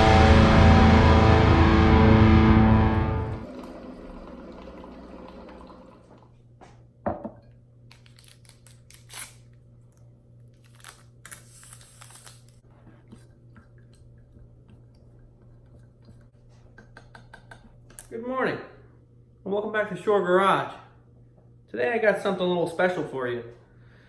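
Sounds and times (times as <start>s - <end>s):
distorted electric guitar music: 0.0s - 3.4s.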